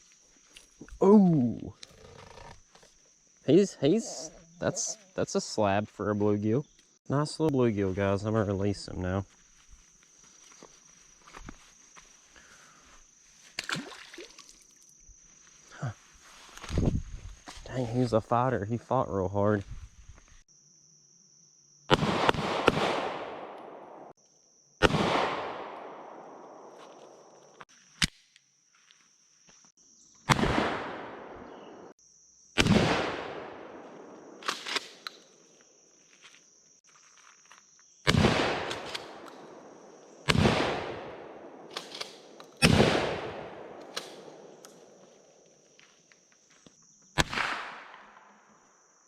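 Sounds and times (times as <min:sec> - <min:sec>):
high insect buzz: 0:08.9 - 0:17.8, 0:19.6 - 0:22.0, 0:24.1 - 0:24.8, 0:31.4 - 0:32.8, 0:33.4 - 0:40.5, 0:43.9 - 0:47.2, 0:48.1 - 0:49.0
gunshots with echo: 0:21.9 - 0:23.9, 0:24.8 - 0:26.1, 0:42.6 - 0:44.4.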